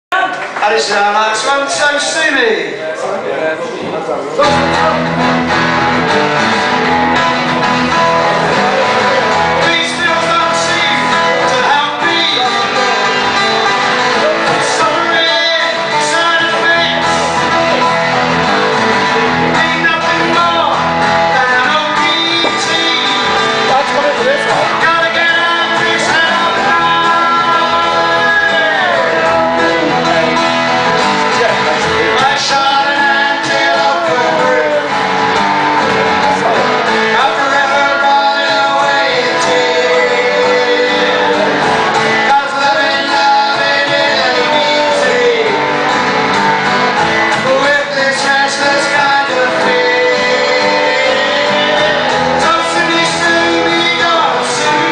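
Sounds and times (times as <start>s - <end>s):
strummed guitar: 0.3s - 54.9s
person singing: 4.4s - 54.9s.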